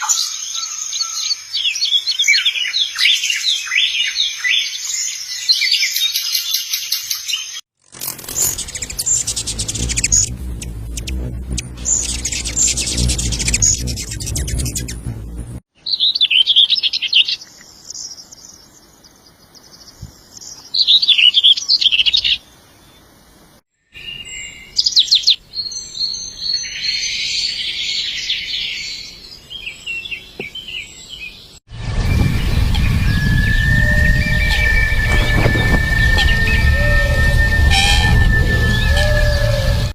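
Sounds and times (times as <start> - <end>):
birds chirping and singing: 0.0 - 18.6, 24.1 - 39.9
low rumble: 8.2 - 15.6, 31.7 - 39.9.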